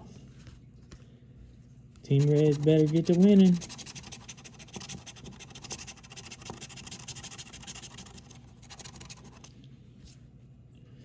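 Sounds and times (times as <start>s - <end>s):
scraping a scratch-off ticket: 2.1s - 9.5s.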